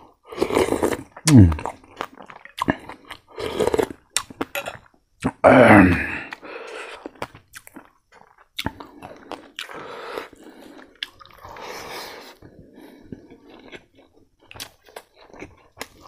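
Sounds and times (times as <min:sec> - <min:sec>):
chewing crispy food: 0:00.0 - 0:16.0
mouth clicks: 0:01.2 - 0:01.8.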